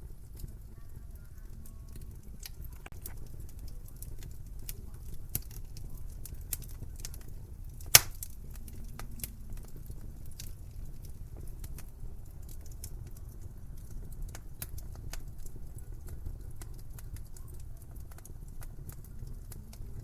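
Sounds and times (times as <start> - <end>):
wood fire crackling: 0.0 - 20.0
loud sharp pop: 7.9 - 8.2.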